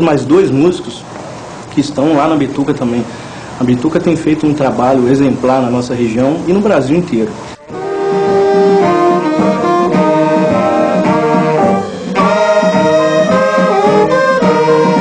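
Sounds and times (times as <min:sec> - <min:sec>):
horn section playing melody: 0:07.6 - 0:15.0.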